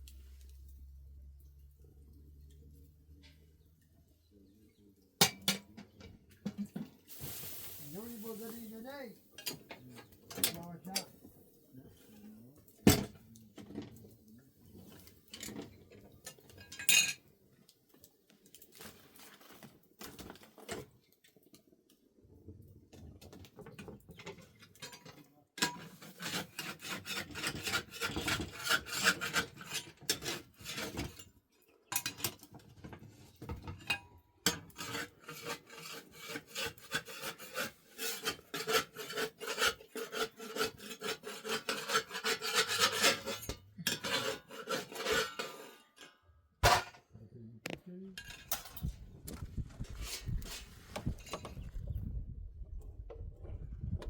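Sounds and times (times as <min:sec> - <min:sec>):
scraping strokes: 0:34.7 - 0:45.8, 0:49.6 - 0:51.6.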